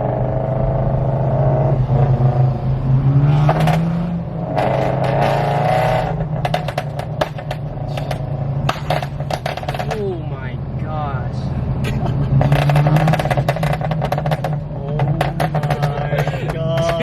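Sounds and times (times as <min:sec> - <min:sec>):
loud car exhaust drone: 0:00.0 - 0:17.0
exhaust backfire pops: 0:03.3 - 0:03.9, 0:04.5 - 0:10.1, 0:11.9 - 0:17.0.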